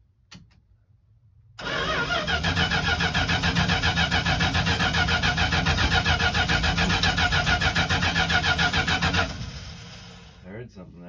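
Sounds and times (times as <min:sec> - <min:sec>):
engine cranking on starter: 0:01.6 - 0:10.3.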